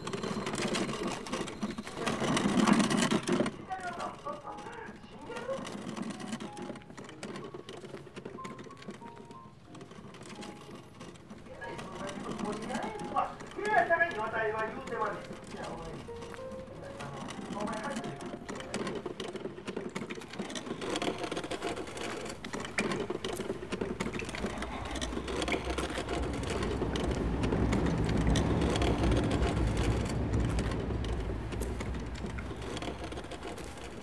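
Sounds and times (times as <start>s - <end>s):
wooden chest scraping over pavement: 0.0s - 34.0s.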